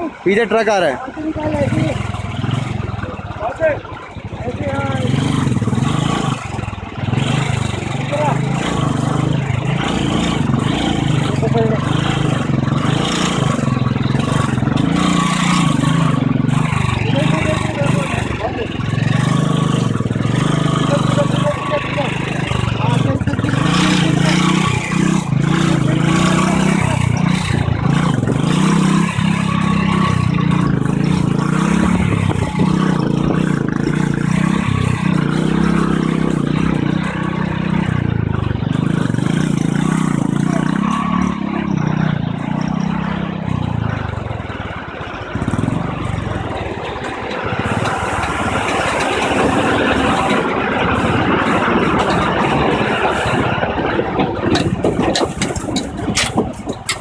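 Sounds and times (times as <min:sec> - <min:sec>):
motorcycle engine running: 0:00.0 - 0:57.0
steady rushing noise: 0:44.4 - 0:57.0.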